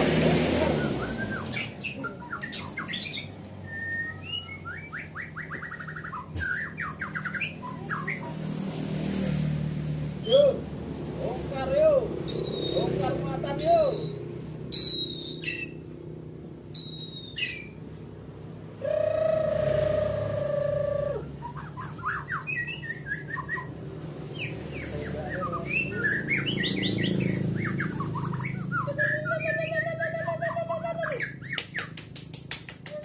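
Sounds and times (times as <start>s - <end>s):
bird singing varied song: 0.8s - 8.4s, 11.2s - 15.9s, 16.7s - 17.8s, 20.5s - 32.0s.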